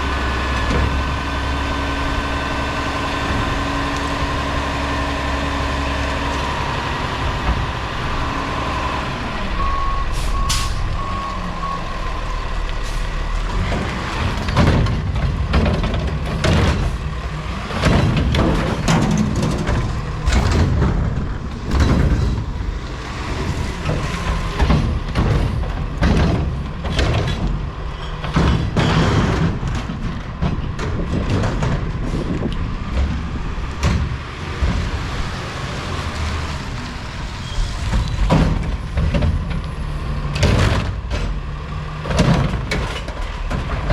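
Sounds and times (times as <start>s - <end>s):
diesel engine running: 0.0s - 43.9s
truck backup beeps: 8.4s - 13.2s
bangs and clatters: 13.6s - 35.0s, 37.3s - 39.6s.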